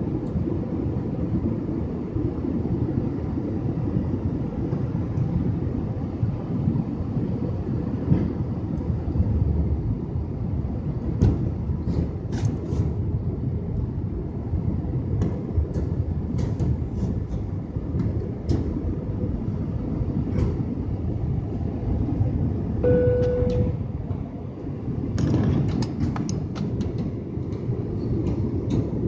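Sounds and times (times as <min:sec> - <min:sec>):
airplane cabin rumble: 0:00.0 - 0:29.0
rattles and clicks: 0:25.2 - 0:29.0.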